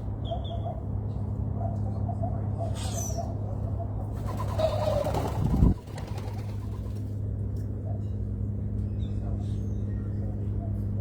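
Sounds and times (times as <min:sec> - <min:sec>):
dove cooing: 0:04.2 - 0:07.0.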